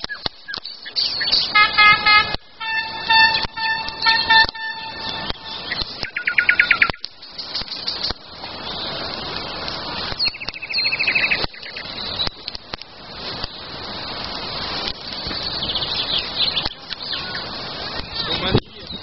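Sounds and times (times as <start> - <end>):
songbirds singing: 0.0 - 1.8, 2.8 - 14.3, 14.9 - 19.0
rushing noise: 0.0 - 19.0
fast repeated bird trill: 2.7 - 8.1.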